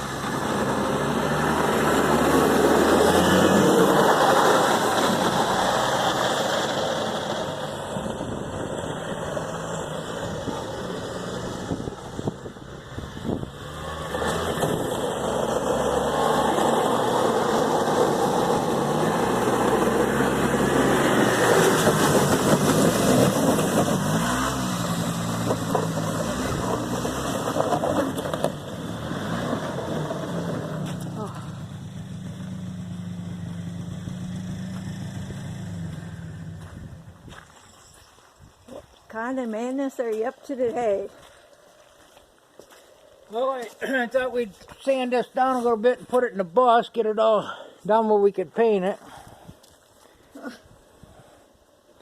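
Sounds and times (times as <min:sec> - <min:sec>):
vehicle engine speeding up and slowing: 0:00.0 - 0:37.7.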